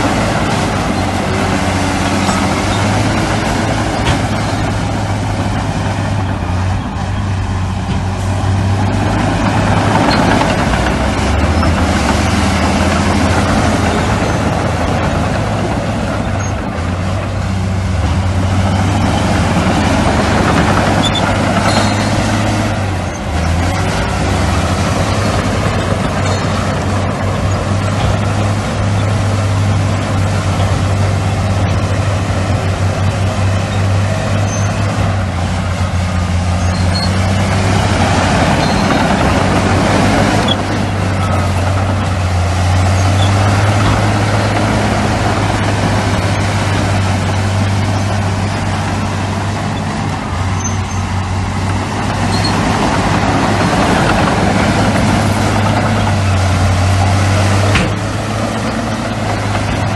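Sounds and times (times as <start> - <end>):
diesel machinery engine drone: 0.0 - 59.9.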